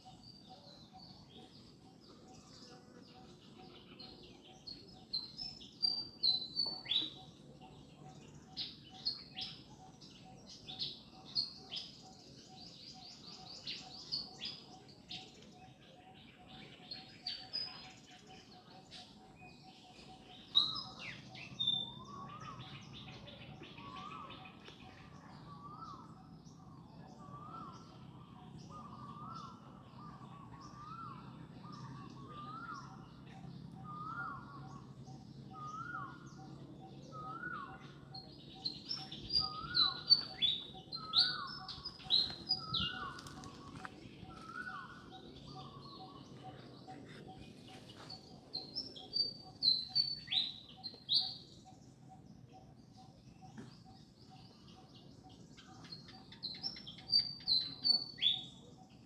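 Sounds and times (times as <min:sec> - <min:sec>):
bird calling: 0:25.6 - 0:51.8.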